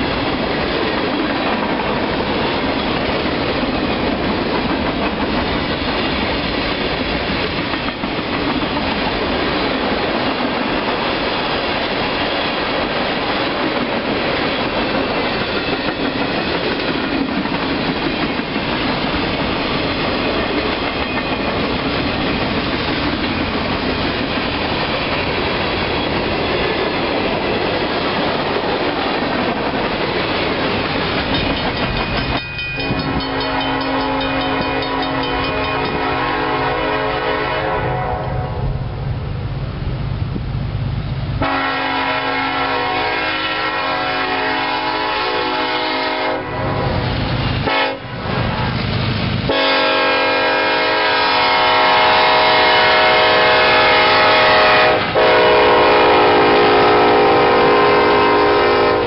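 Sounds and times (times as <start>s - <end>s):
freight train wheels on rails: 0.0s - 59.0s
locomotive horn: 32.8s - 38.7s, 41.4s - 47.0s, 47.6s - 48.1s, 49.5s - 59.0s.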